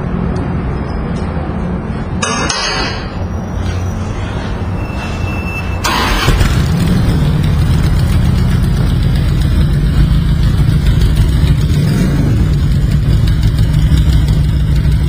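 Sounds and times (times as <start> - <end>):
rushing noise: 2.9 - 13.8
motorcycle engine rumbling: 3.1 - 15.0.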